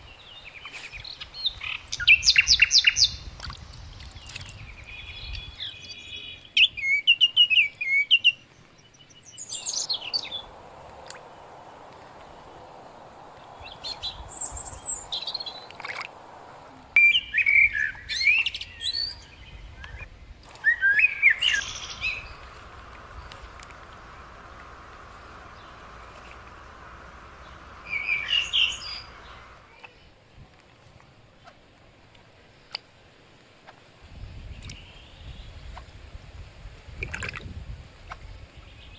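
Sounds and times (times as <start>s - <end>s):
birds twittering: 0.0s - 30.1s
faint steady hiss: 0.0s - 38.9s.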